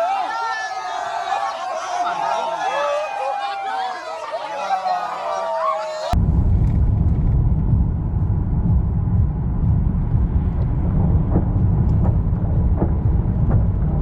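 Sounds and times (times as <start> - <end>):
loud low rumble: 6.2 - 14.0.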